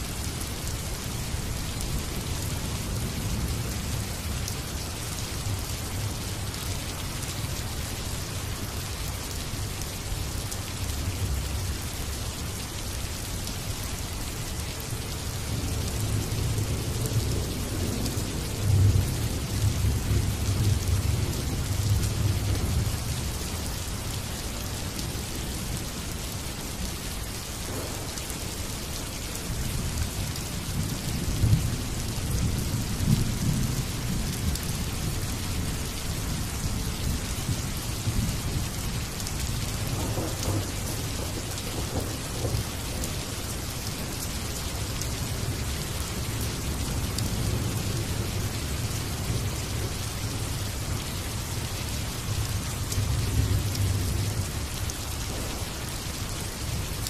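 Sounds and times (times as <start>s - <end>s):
steady rain falling: 0.0s - 57.0s
low thunder rumbling: 27.6s - 28.6s, 39.7s - 43.3s, 52.2s - 56.8s.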